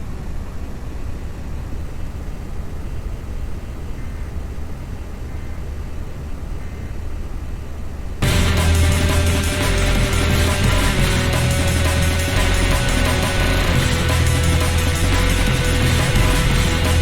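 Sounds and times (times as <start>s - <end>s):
car driving rumble: 7.4s - 17.0s.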